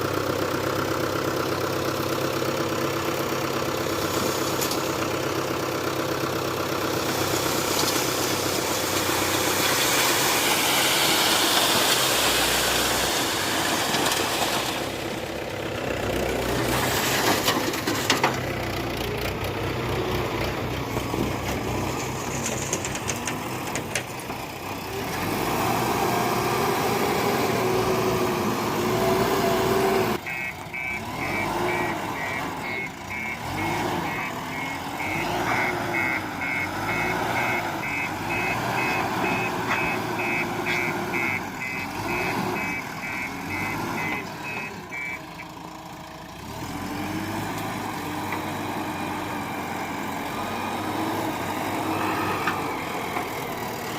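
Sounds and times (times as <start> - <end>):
heavy diesel engines revving: 0.0 - 53.9
reversing alarm beeping: 30.2 - 45.4.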